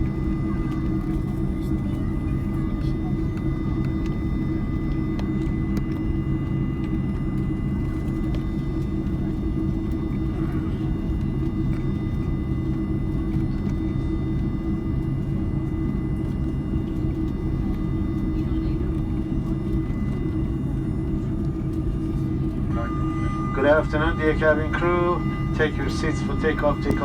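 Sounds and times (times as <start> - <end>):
airplane cabin drone: 0.0 - 27.0
faint high whine: 22.0 - 27.0.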